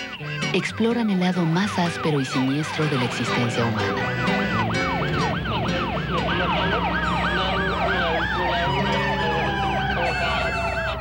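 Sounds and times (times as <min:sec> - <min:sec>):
fast yelping siren: 0:01.2 - 0:11.0
slow wailing siren: 0:01.4 - 0:11.0.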